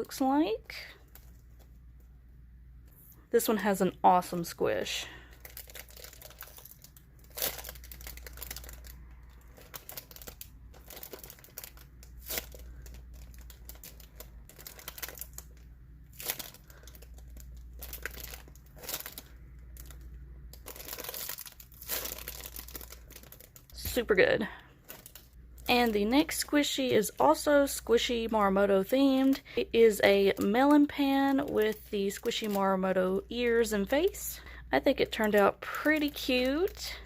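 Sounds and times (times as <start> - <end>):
steady low hum: 0.0 - 37.0
squishy toy crinkling rustles: 0.6 - 1.9, 5.3 - 37.0.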